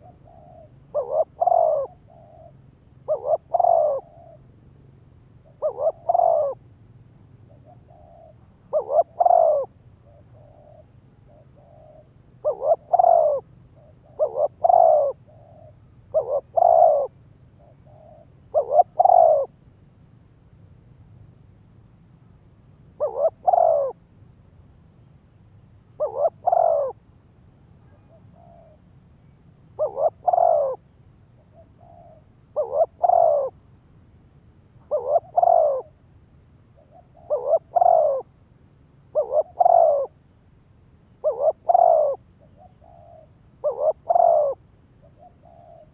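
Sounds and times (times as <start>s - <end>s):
dove cooing: 0.0s - 4.5s, 5.4s - 6.7s, 7.5s - 19.6s, 23.0s - 24.0s, 25.9s - 27.0s, 27.8s - 28.9s, 29.7s - 33.6s, 34.8s - 36.0s, 36.8s - 38.4s, 39.1s - 40.2s, 41.2s - 45.9s.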